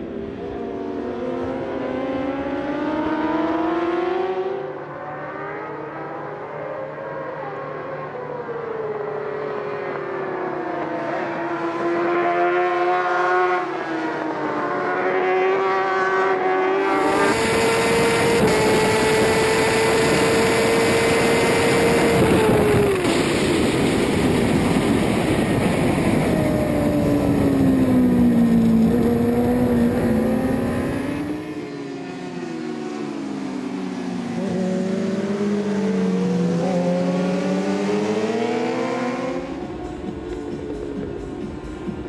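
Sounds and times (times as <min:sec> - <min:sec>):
motorcycle engine at high revs: 0:00.0 - 0:06.6, 0:08.9 - 0:41.1
wind noise: 0:16.8 - 0:31.4.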